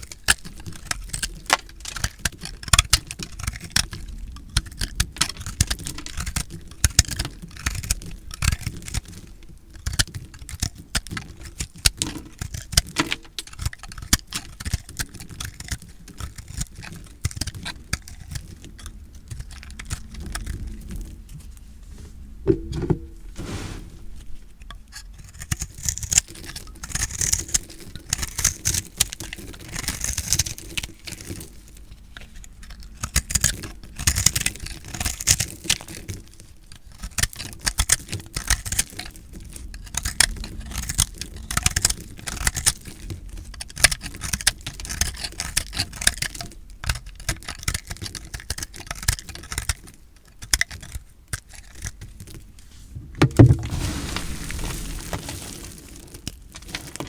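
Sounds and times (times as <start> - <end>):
dull knock: 22.5 - 23.9, 53.1 - 53.9.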